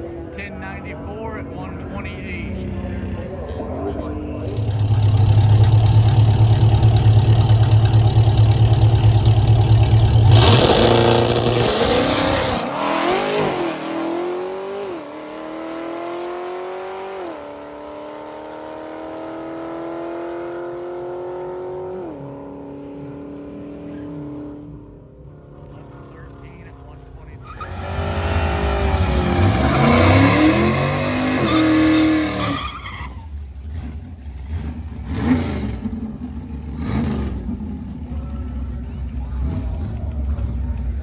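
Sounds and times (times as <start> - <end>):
car engine revving high: 4.4 - 23.2, 27.5 - 32.8, 33.6 - 38.0
car accelerating through gear shifts: 4.4 - 24.7.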